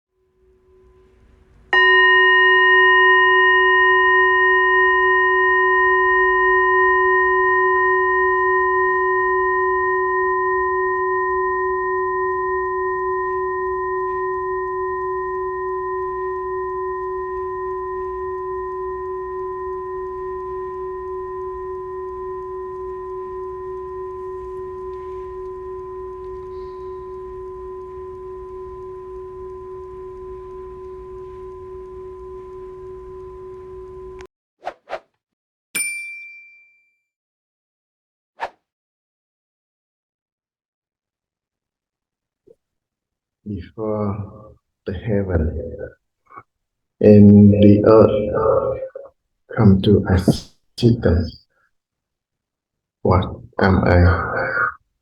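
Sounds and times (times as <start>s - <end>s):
bowl bell ringing: 0.3s - 34.3s, 35.8s - 36.9s.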